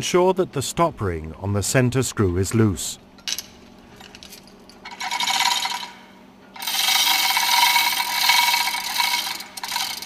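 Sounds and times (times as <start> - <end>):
metal tool rasping and scraping: 6.6 - 10.0.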